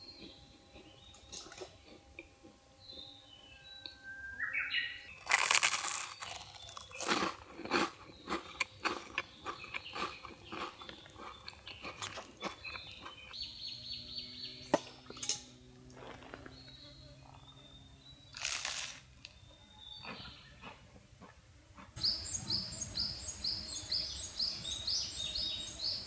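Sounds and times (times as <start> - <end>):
bird chirps: 2.8 - 5.2, 22.0 - 26.0
irregular crunching and crackling: 5.2 - 13.4, 15.0 - 16.7, 18.4 - 19.4
steady buzz: 22.0 - 26.0.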